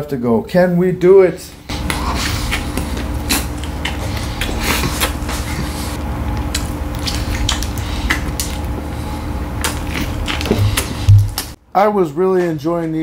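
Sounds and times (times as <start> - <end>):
faint hum: 0.1 - 12.2
person chewing food: 1.7 - 11.6.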